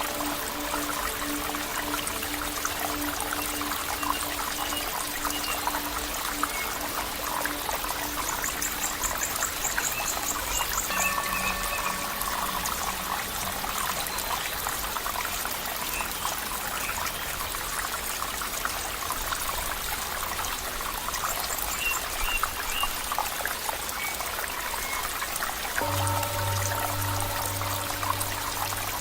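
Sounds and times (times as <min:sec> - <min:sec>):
low steady tone: 0:00.0 - 0:15.2, 0:25.8 - 0:29.0
water trickling and splashing: 0:00.0 - 0:29.0.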